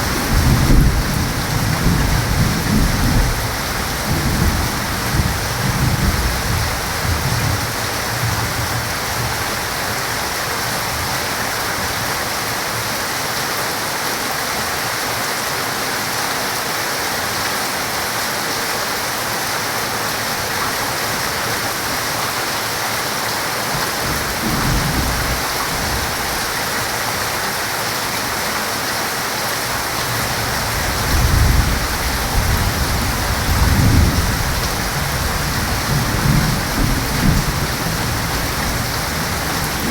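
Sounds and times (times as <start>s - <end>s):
thunder rumbling: 0.0s - 9.8s, 23.7s - 26.9s, 29.8s - 39.9s
heavy rain: 0.0s - 39.9s.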